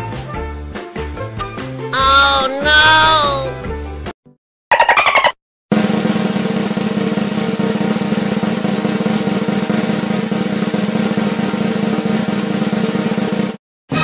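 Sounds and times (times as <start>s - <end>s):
snare drum roll: 5.7s - 13.6s.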